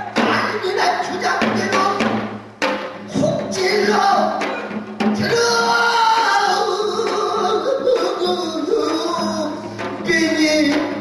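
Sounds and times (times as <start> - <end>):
person singing long bending notes: 5.2 - 11.0.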